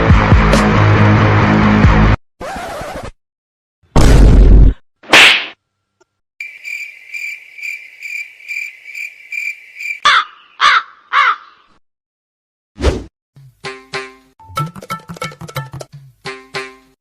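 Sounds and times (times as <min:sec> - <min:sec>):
cricket chirping: 0:06.4 - 0:10.1
crow cawing: 0:10.0 - 0:11.8.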